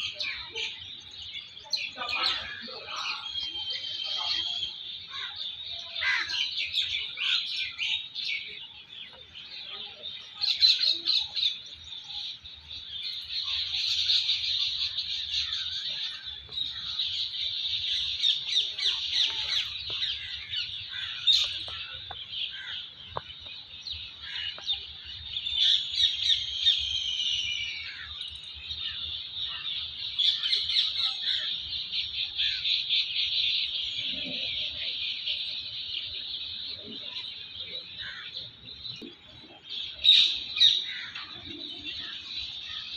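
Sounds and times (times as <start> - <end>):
birds chirping and singing: 0.0 - 42.9.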